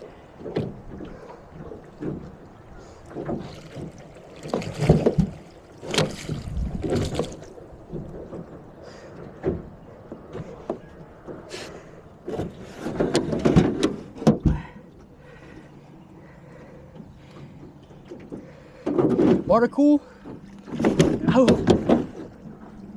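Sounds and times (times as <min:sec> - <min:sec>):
knocks against a small boat: 0:03.1 - 0:08.6, 0:12.2 - 0:14.8, 0:17.4 - 0:22.4.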